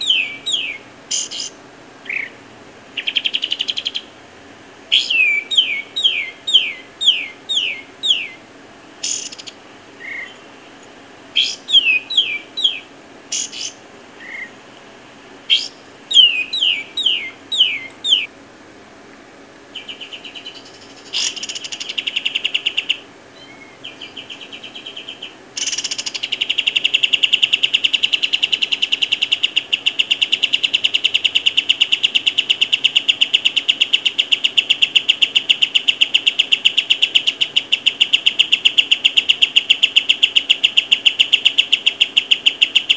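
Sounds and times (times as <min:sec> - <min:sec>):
bird whistling down-slurred notes: 0:00.0 - 0:01.5, 0:04.9 - 0:08.4, 0:11.4 - 0:12.8, 0:15.5 - 0:18.3
rapid bird trill: 0:00.0 - 0:04.3, 0:04.9 - 0:14.7, 0:15.4 - 0:18.3, 0:19.7 - 0:42.9.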